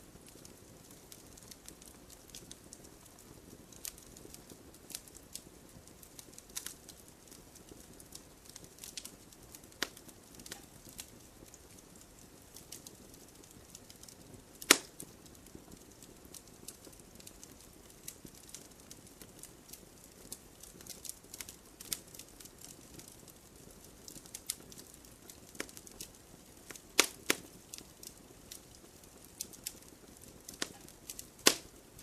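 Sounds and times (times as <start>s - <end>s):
campfire crackling: 0.0s - 32.0s
loud fire pop: 14.7s - 14.9s, 27.0s - 27.4s, 31.4s - 31.7s.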